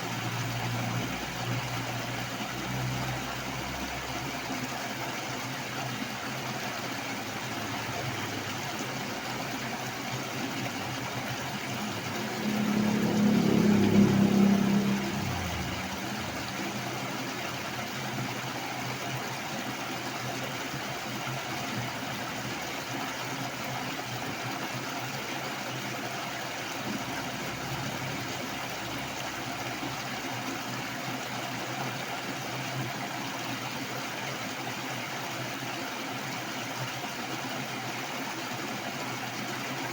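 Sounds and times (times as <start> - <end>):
rushing water: 0.0 - 39.9
low hum: 11.9 - 16.8.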